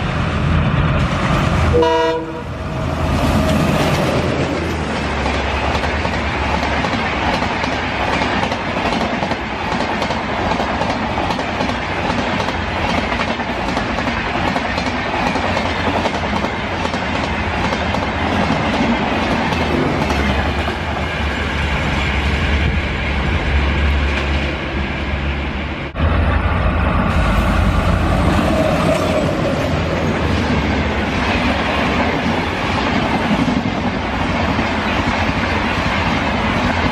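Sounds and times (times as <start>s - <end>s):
train wheels clacking on rails: 3.1s - 22.4s.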